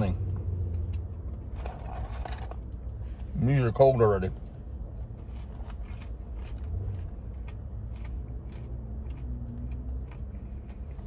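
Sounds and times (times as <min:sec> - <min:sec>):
steady low rumble: 0:00.0 - 0:11.0
person chewing fries: 0:04.3 - 0:11.0.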